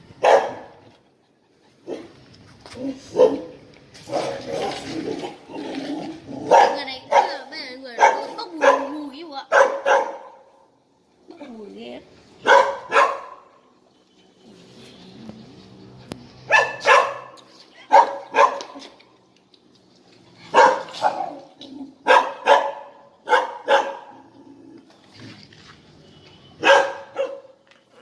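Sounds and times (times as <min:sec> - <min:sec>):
small dog barking: 0:00.2 - 0:00.8, 0:03.1 - 0:04.3, 0:06.4 - 0:10.5, 0:12.4 - 0:13.5, 0:16.5 - 0:18.8, 0:20.5 - 0:24.2, 0:26.6 - 0:27.6.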